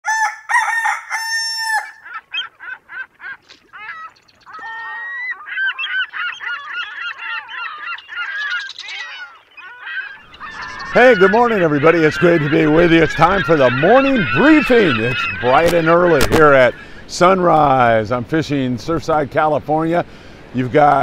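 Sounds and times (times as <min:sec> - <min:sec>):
flock of birds calling: 0:00.1 - 0:21.0.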